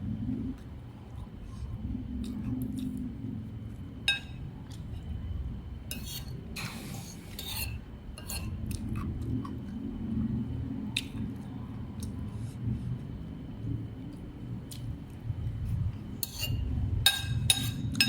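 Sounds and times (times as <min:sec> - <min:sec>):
low background rumble: 0:00.0 - 0:18.0
cutlery scraping a dish: 0:05.9 - 0:08.6, 0:16.2 - 0:18.0
cutlery clinking on a dish: 0:16.2 - 0:18.0.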